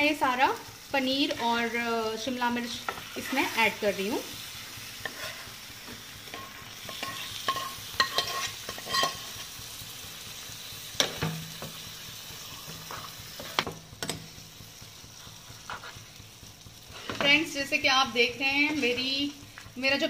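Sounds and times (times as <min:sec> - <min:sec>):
food sizzling in a pan: 0:00.0 - 0:20.0
spatula scraping a pan: 0:05.0 - 0:09.4, 0:12.6 - 0:13.7, 0:15.2 - 0:16.2, 0:16.9 - 0:17.4, 0:18.4 - 0:19.6.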